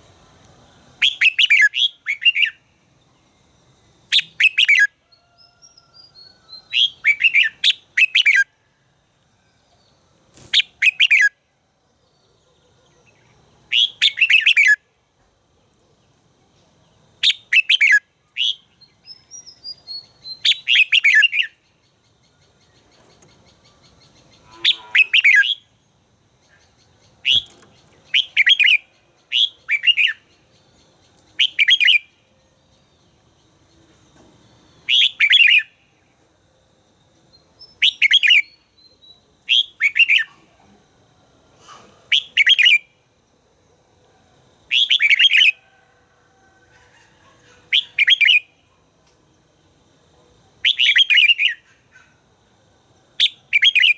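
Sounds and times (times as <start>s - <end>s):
bird singing warbled phrases: 0.8s - 3.2s, 4.1s - 5.0s, 5.6s - 8.6s, 9.7s - 11.4s, 12.0s - 14.8s, 16.0s - 34.0s, 34.6s - 36.1s, 37.3s - 40.8s, 41.7s - 43.0s, 44.7s - 45.6s, 46.8s - 48.8s, 50.6s - 52.2s, 53.2s - 53.9s.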